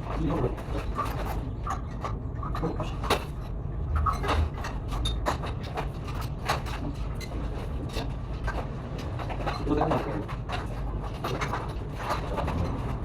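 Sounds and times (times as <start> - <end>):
construction knocks and clicks: 0.0 - 13.0
low rumble: 3.4 - 5.2, 12.2 - 13.0.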